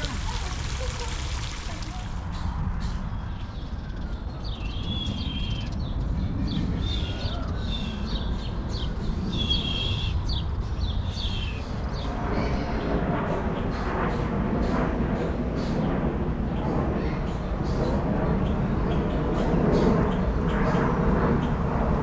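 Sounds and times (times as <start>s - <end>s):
bird calling: 0.0s - 2.2s.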